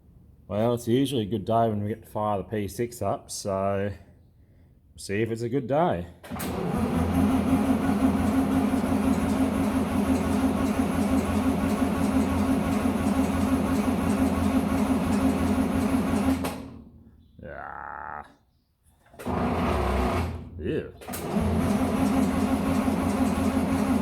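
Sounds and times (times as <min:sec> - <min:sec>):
farm machine engine humming: 0:06.3 - 0:16.6, 0:21.1 - 0:24.0.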